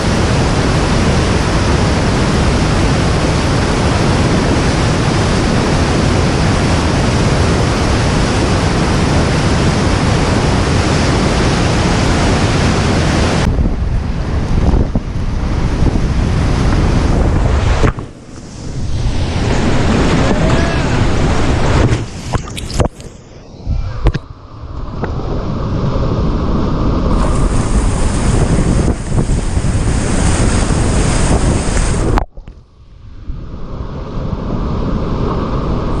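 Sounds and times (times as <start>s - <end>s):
low muffled rumble: 13.4s - 35.4s
whitewater rapids rushing: 16.6s - 22.9s, 27.1s - 32.2s.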